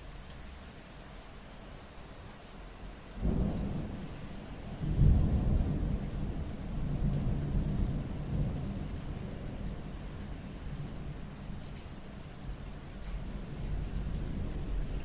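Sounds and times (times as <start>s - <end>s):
steady rain: 0.0s - 15.0s
thunder rumbling: 3.2s - 9.9s.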